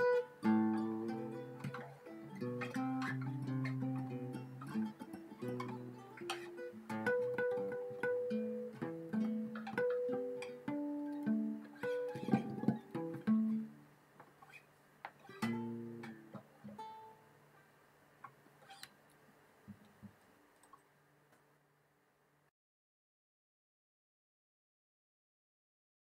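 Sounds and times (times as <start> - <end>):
plucked string instrument: 0.0 - 13.8, 15.1 - 17.3.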